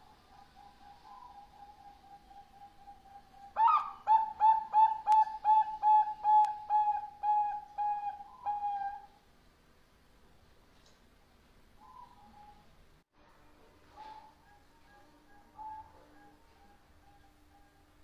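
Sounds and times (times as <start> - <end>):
dove cooing: 0.0 - 9.2, 11.8 - 12.7, 13.9 - 18.0.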